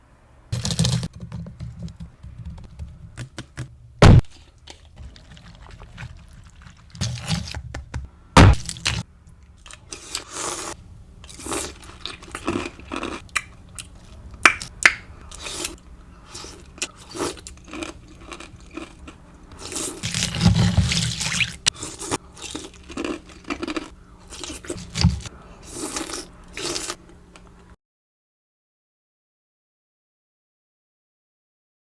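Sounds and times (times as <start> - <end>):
wet chewing and crunching: 4.2 - 7.6, 8.4 - 27.7.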